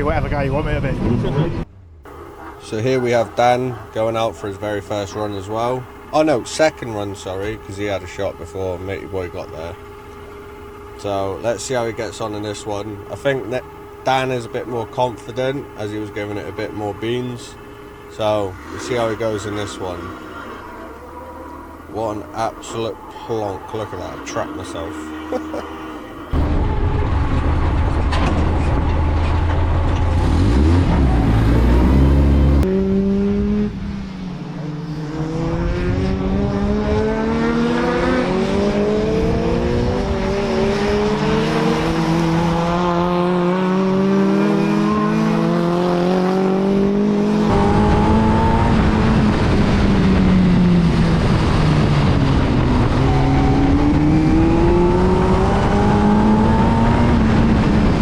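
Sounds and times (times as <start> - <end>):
stock car engine revving: 0.0 - 58.0.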